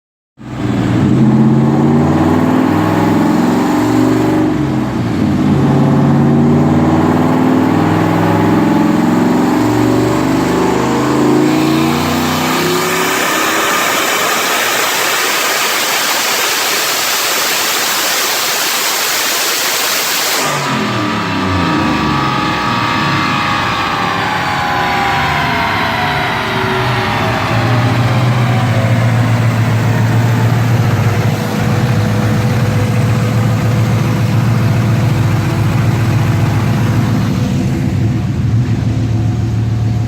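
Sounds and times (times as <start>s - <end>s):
car engine revving: 0.4s - 40.0s
loud steady hiss: 13.2s - 20.9s.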